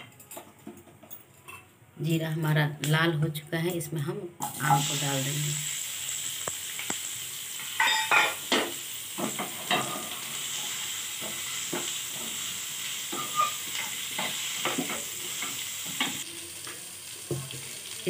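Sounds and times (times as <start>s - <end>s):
food sizzling in frying pan: 4.4s - 18.0s
spatula scraping against pan: 13.1s - 16.2s.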